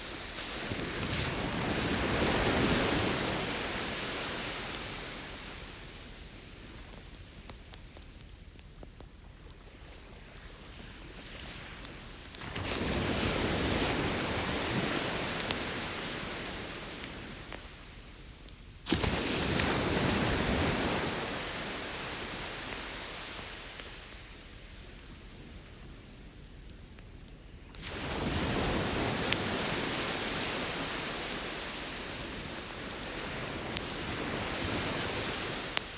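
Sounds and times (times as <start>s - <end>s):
faint campfire crackles: 0.0s - 35.9s
ocean waves breaking: 18.9s - 23.6s, 27.8s - 35.9s.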